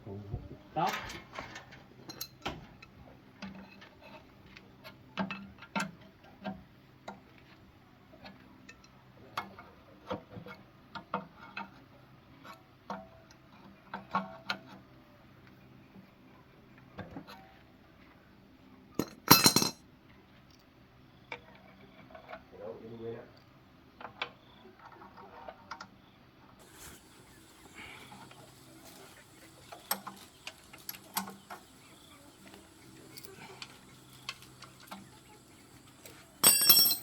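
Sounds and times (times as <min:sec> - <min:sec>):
metal tools clinking and tapping: 0:00.9 - 0:02.4, 0:19.0 - 0:19.8, 0:27.7 - 0:37.0.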